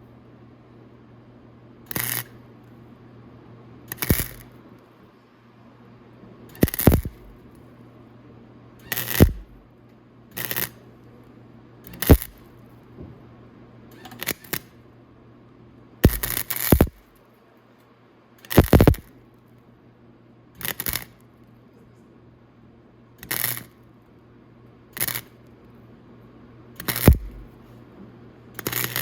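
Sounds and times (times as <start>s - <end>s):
steady low hum: 0.0s - 29.0s
welding arc crackling: 1.9s - 2.3s, 3.9s - 4.5s, 6.6s - 7.4s, 8.9s - 9.6s, 10.4s - 10.7s, 11.9s - 12.4s, 14.0s - 14.6s, 16.0s - 17.1s, 18.5s - 19.1s, 20.6s - 21.2s, 23.2s - 23.7s, 25.0s - 25.3s, 26.8s - 27.6s, 28.6s - 29.0s.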